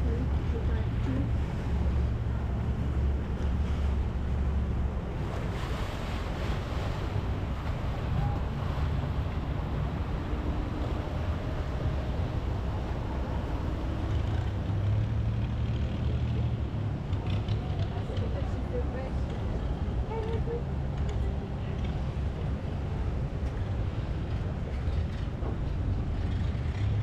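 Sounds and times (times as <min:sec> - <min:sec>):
boat engine humming: 0:00.0 - 0:27.0.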